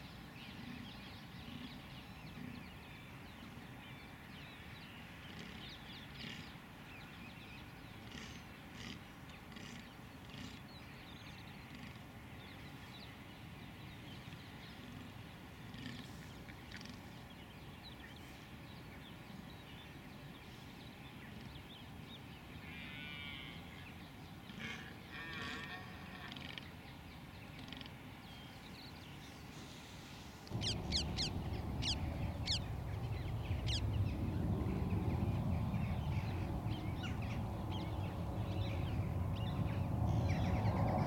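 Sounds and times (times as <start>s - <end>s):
bird calls: 27.5s - 41.0s
steady low rumble: 30.5s - 41.0s.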